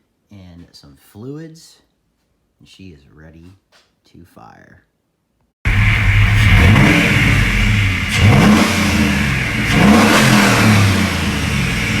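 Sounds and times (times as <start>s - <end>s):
pickup engine throttle blips: 5.7s - 12.0s.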